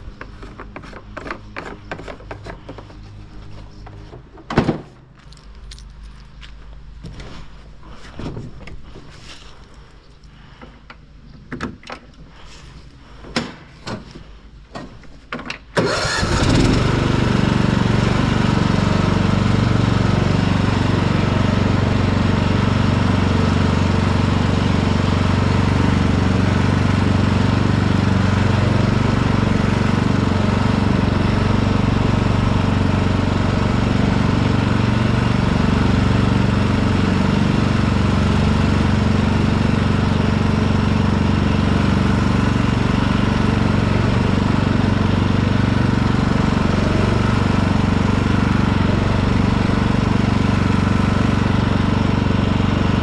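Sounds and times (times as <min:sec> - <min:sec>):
lawn tractor engine running: 0:15.8 - 0:53.0.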